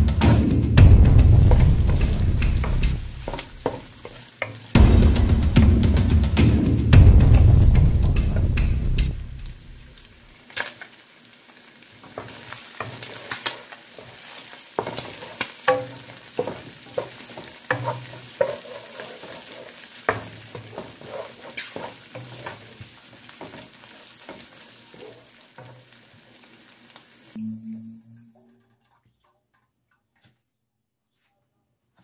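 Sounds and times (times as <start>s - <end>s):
food sizzling: 0.0s - 28.0s
spatula tapping and scraping pan: 1.5s - 4.8s, 12.0s - 25.9s.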